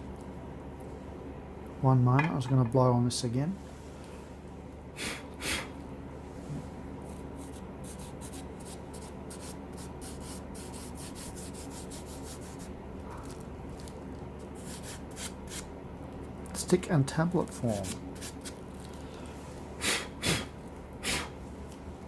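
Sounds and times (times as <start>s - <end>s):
puff of breath: 19.1s - 21.3s.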